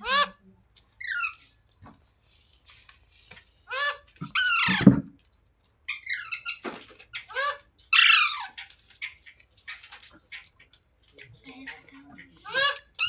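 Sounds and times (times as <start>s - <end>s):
parrot squawking: 0.0s - 0.4s, 3.7s - 4.8s, 5.9s - 8.6s, 11.7s - 13.0s.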